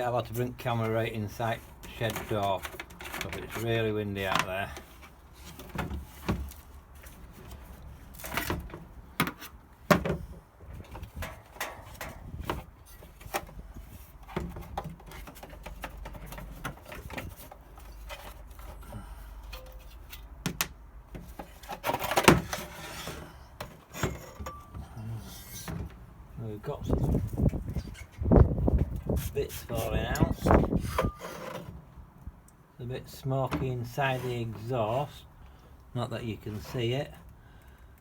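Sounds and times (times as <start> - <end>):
low wind rumble: 25.9 - 31.2.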